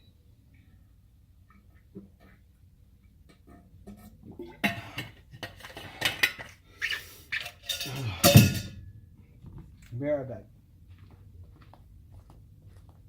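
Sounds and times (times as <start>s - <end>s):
dishes and cutlery clinking: 7.4s - 8.8s.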